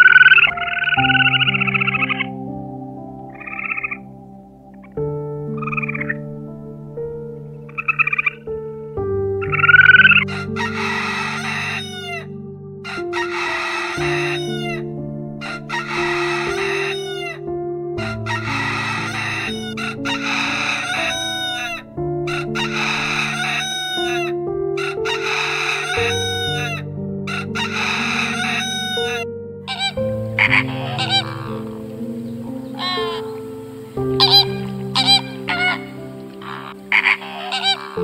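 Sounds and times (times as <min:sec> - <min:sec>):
background music with slow chords: 0:00.0 - 0:38.0
swamphen harsh calls: 0:09.5 - 0:12.2, 0:12.9 - 0:14.8, 0:15.4 - 0:17.4, 0:18.0 - 0:38.0.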